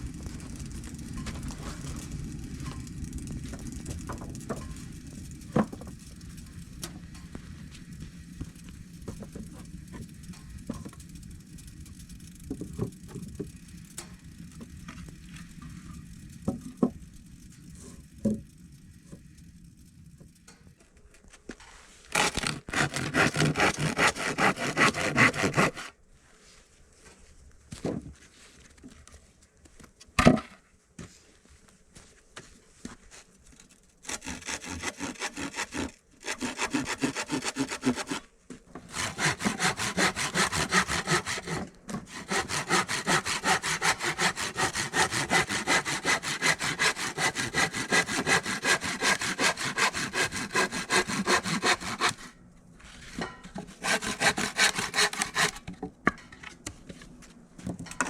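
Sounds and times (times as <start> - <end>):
hand saw cutting wood: 22.0 - 26.0, 34.0 - 52.4, 53.6 - 55.7.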